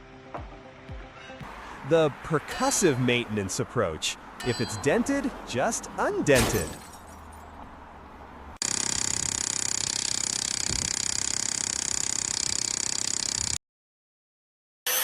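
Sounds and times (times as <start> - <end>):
machine rattling rapidly: 8.6 - 13.6.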